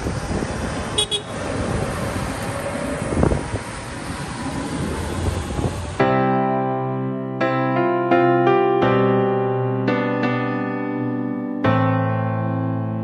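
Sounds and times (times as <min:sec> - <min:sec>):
tractor engines rumbling: 0:00.0 - 0:06.0
wind on microphone: 0:00.0 - 0:06.0
piano music: 0:06.0 - 0:13.0.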